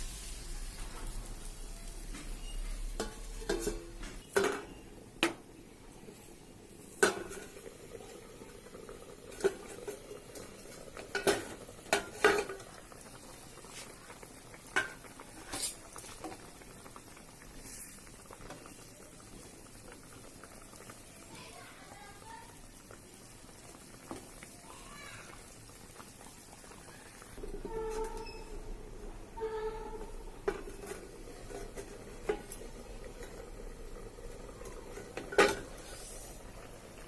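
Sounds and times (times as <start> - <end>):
spoon scraping against pan: 2.2 - 4.8, 15.4 - 15.8, 27.4 - 28.6, 29.3 - 33.3, 34.9 - 36.4.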